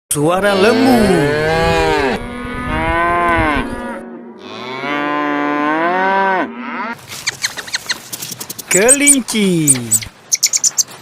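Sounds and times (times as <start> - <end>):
cow mooing: 0.4 - 7.0.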